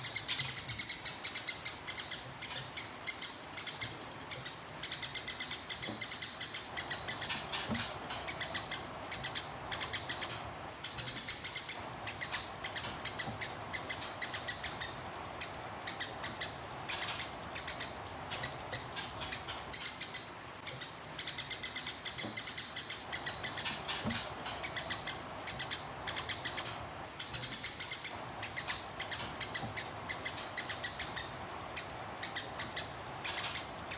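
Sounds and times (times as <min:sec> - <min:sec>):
sparrow chirping fast: 0:00.0 - 0:33.9.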